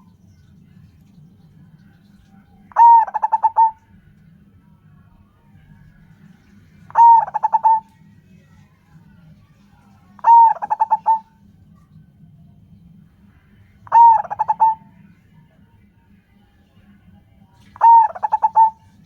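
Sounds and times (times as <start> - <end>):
dove cooing: 2.7 - 3.8, 6.8 - 8.0, 10.1 - 11.4, 13.8 - 15.1, 17.8 - 19.0.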